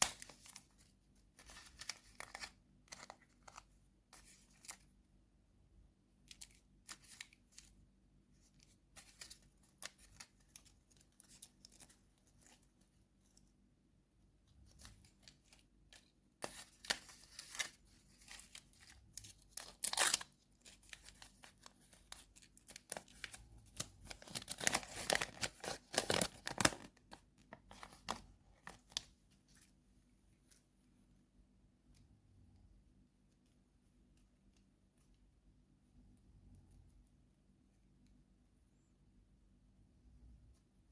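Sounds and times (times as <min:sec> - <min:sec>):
wrapper tearing and crinkling: 0:18.4 - 0:27.0.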